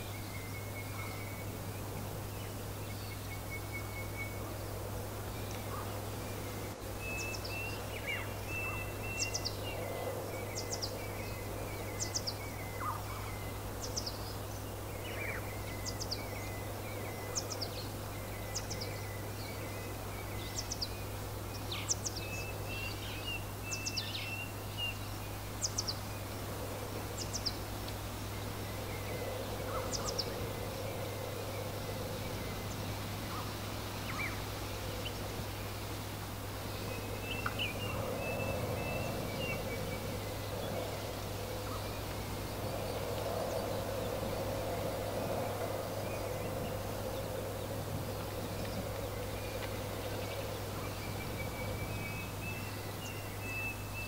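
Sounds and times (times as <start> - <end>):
wind noise: 25.4 - 53.5.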